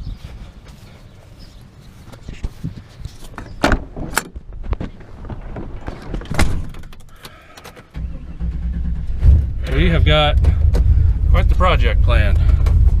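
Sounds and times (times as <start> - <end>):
low rumble: 8.0 - 13.0
sharp clunks and knocks: 10.3 - 11.0.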